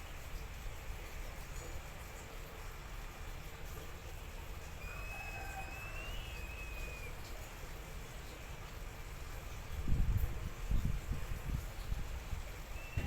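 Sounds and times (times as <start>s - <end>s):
bird whistle: 4.8s - 7.2s, 12.8s - 13.0s
low rumble of wind: 6.3s - 13.0s.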